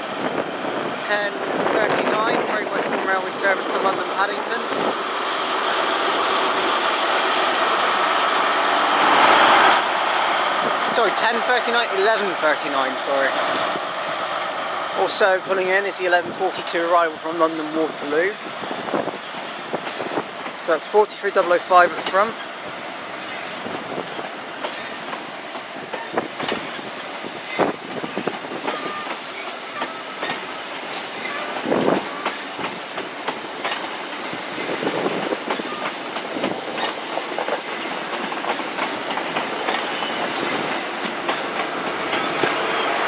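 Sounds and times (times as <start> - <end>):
train coaches rolling rumble: 0.0 - 43.0
wheels clicking over rail joints: 18.7 - 43.0.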